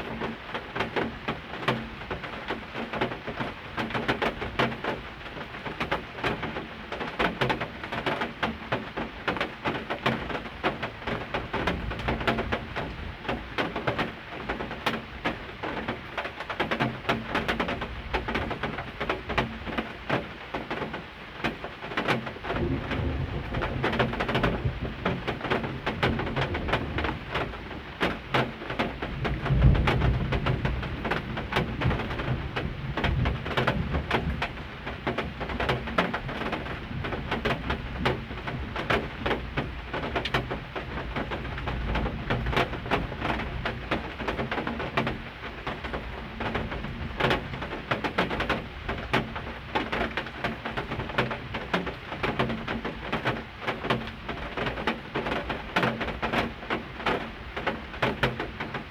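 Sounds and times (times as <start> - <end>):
heavy rain pattering: 0.0 - 58.9.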